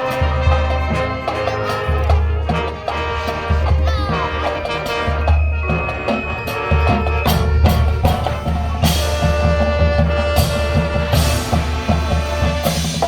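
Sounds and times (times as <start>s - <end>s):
brass chords: 0.0s - 13.0s
drumline: 0.0s - 13.0s
cymbal crashes: 4.3s - 13.0s
bass drum pulse: 5.6s - 12.1s.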